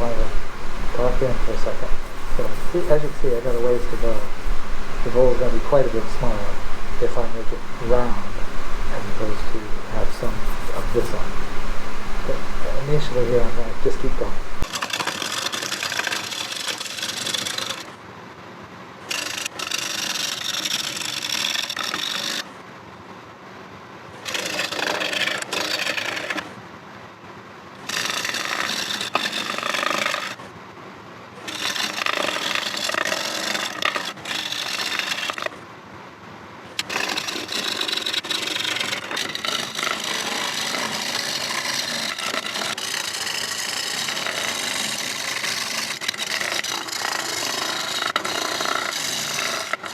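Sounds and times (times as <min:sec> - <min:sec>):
wood lathe running: 0:00.0 - 0:14.7, 0:31.6 - 0:35.5, 0:36.8 - 0:49.9
turning tool shaving wood: 0:00.0 - 0:17.8, 0:19.1 - 0:22.4, 0:24.3 - 0:26.4, 0:27.9 - 0:30.4, 0:31.5 - 0:35.5, 0:36.8 - 0:49.9.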